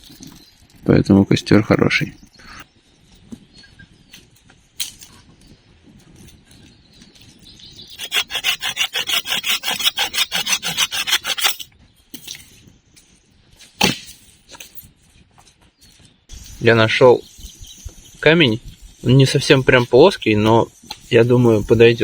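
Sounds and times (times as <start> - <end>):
hand saw cutting wood: 8.0 - 11.7.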